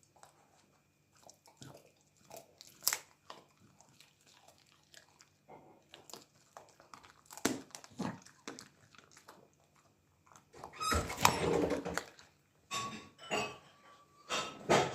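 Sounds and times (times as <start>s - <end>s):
dog crunching on chicken: 0.0s - 12.6s.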